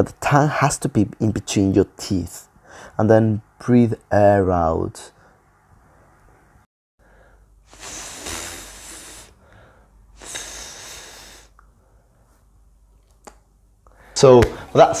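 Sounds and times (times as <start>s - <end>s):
man hissing th sound: 7.6s - 9.5s, 10.2s - 11.6s.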